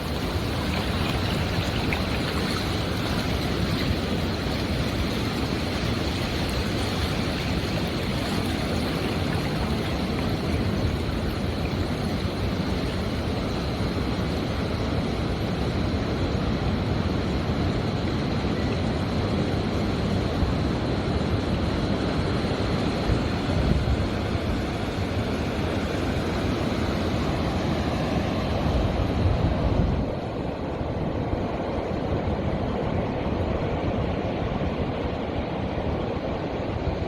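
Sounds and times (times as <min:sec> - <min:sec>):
ocean surf breaking: 0:00.0 - 0:15.2, 0:23.8 - 0:37.0.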